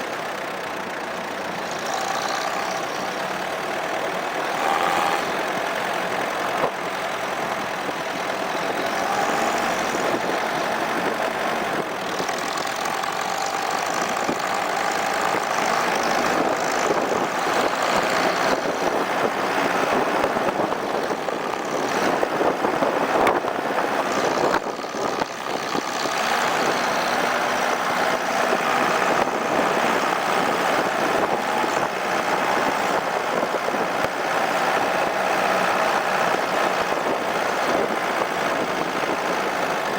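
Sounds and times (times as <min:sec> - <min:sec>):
car engine running: 0:00.0 - 0:39.9
road and wind noise: 0:00.0 - 0:39.9.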